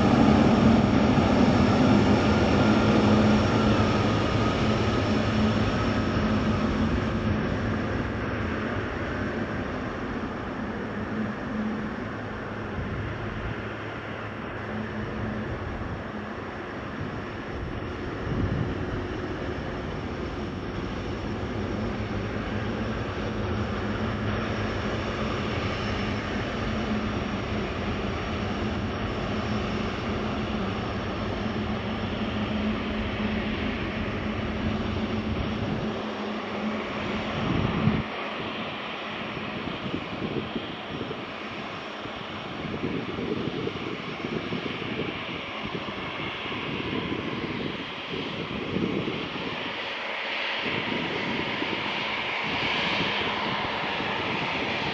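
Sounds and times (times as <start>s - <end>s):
low hum: 0.0s - 39.6s
jet engines whining: 0.0s - 54.9s.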